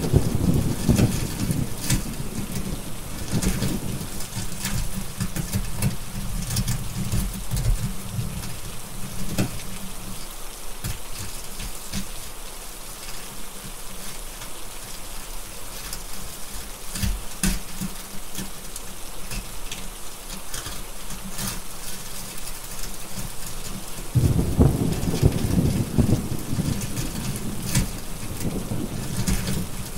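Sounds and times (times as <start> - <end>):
thunder rumbling: 0.0 - 7.3, 24.1 - 29.9
steady rain: 0.0 - 29.9
wood fire crackling: 0.0 - 29.9.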